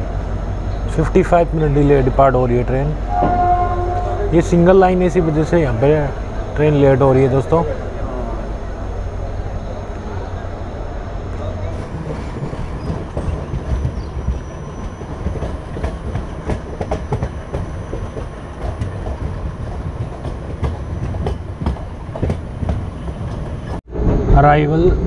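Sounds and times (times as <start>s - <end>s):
wheels clacking on track: 0.0s - 23.8s
train coaches rumbling: 0.0s - 25.0s.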